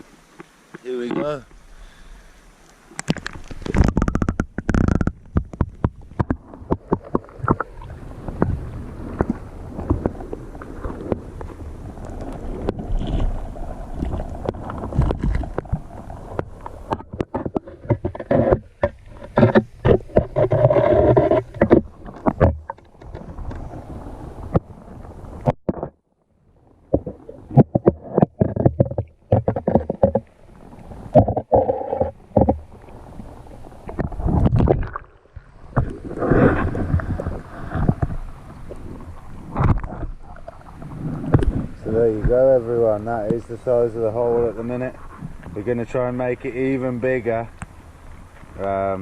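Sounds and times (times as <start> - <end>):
river water running: 0.0 - 49.0
wind buffeting microphone: 5.4 - 18.7.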